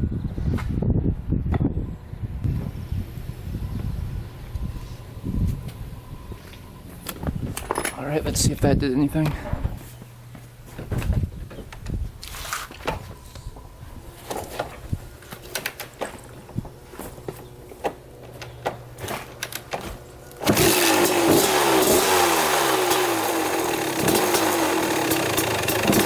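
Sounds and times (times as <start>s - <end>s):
dirt bike engine revving: 20.3s - 26.0s.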